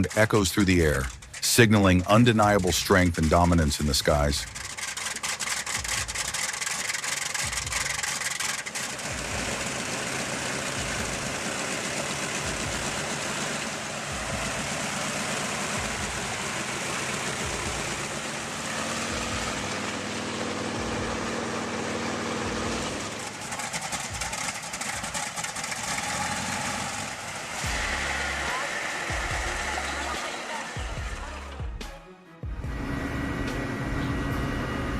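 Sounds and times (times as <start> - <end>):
aircraft piston engine running: 0.0 - 31.6
humming tone: 32.5 - 34.9.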